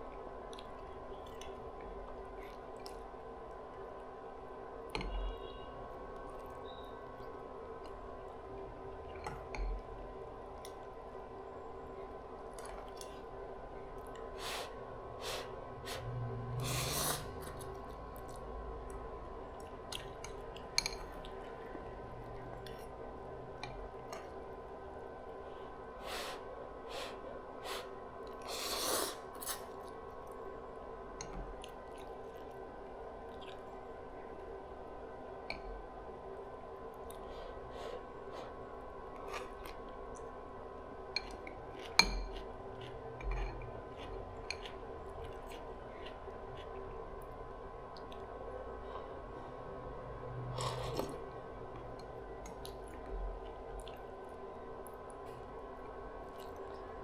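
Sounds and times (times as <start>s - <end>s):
faint steady hum: 0.0s - 57.0s
noisy slurps: 14.4s - 18.4s, 26.1s - 29.8s
chewing and mouth sounds: 19.6s - 21.7s, 33.2s - 33.9s, 41.2s - 47.4s, 50.5s - 57.0s.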